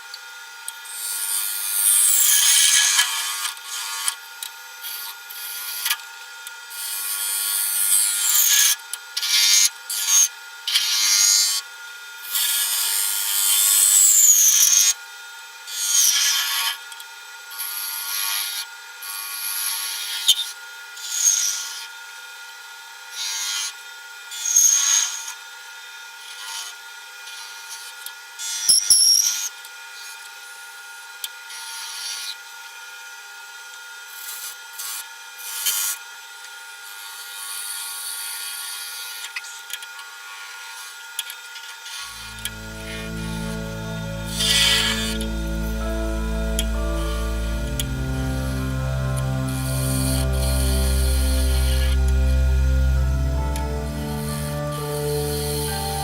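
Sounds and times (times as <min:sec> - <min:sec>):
lathe motor whine: 0:42.1 - 0:56.0.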